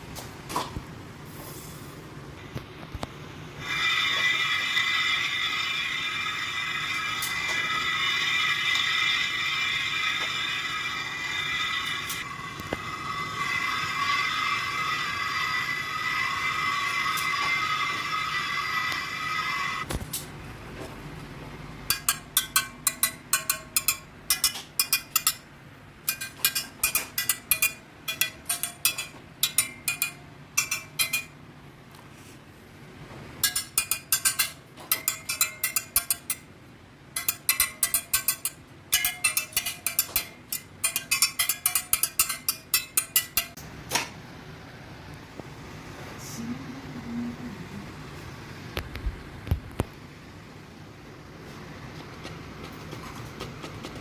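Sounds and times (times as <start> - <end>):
metal spokes pinging when tapped: 21.9 - 31.4, 33.4 - 36.5, 37.1 - 43.6.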